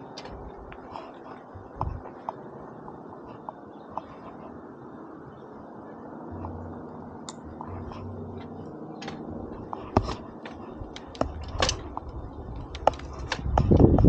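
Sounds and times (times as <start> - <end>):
bike clicks and rattles: 0.0 - 4.5, 7.2 - 14.0
mountain bike rumble on trail: 7.6 - 14.0.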